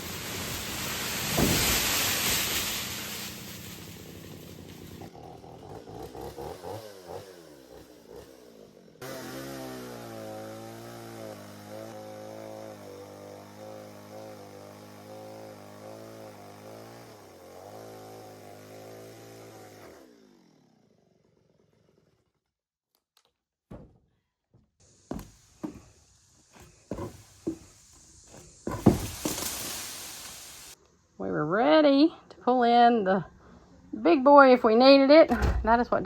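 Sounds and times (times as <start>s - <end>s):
engine running: 0.0s - 16.6s
sharp knocks and thumps: 23.7s - 29.7s.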